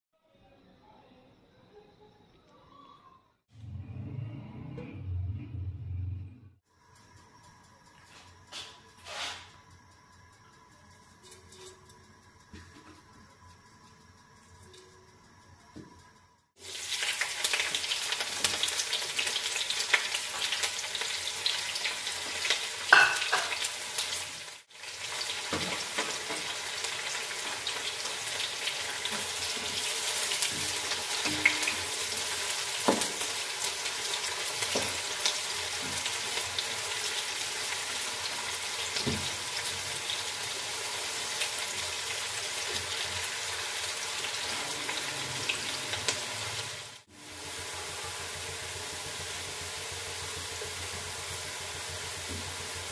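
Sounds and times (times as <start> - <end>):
onions frying in oil: 6.7 - 52.9
spatula scraping a pan: 9.0 - 9.6.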